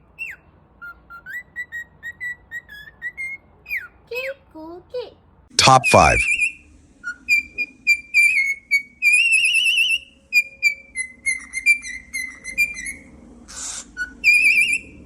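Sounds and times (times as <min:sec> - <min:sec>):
parrot whistling: 0:09.1 - 0:14.9.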